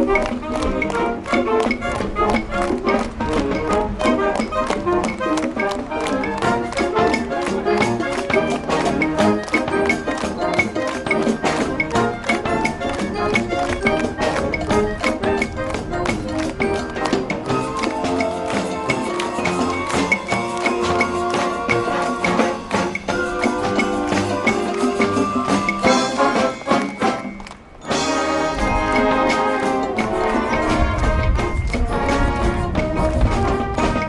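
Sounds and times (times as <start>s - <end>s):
fast drum beat: 0.0s - 27.2s
marching band playing: 0.0s - 34.0s.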